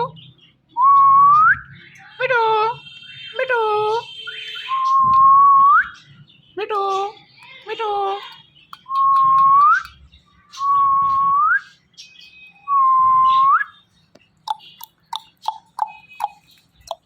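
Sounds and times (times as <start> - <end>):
parrot chirps: 14.4 - 17.0.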